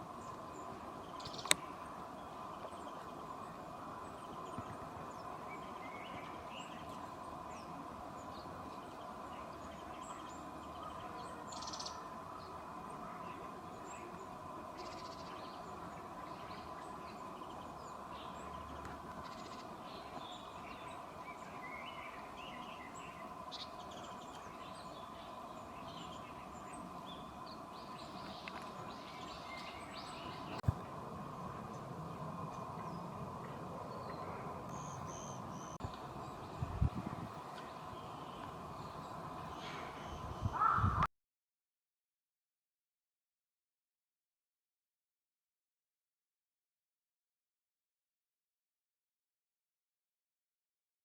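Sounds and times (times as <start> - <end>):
small birds calling: 0.0 - 30.8, 31.4 - 41.1.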